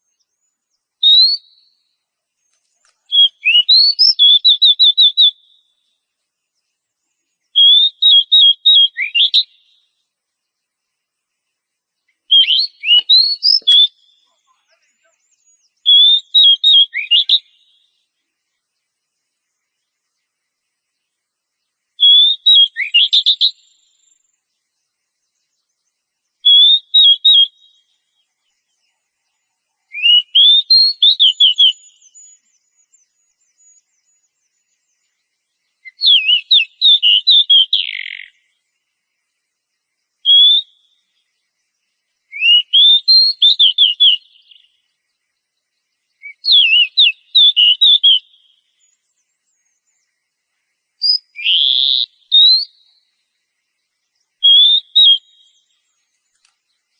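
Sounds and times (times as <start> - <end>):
bird singing whistled phrases: 0.1 - 2.0, 2.8 - 5.9, 7.2 - 10.0, 12.1 - 18.0, 22.0 - 24.3, 26.4 - 28.2, 29.8 - 35.0, 35.8 - 38.4, 40.2 - 41.2, 42.3 - 44.8, 46.2 - 50.1, 51.0 - 53.0, 54.3 - 56.5.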